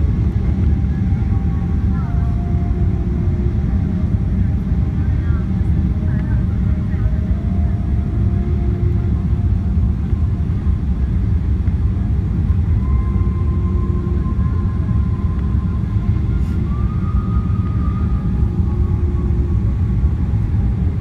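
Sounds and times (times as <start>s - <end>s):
aircraft cabin low rumble: 0.0s - 21.0s
faint jet engine tones: 0.0s - 21.0s.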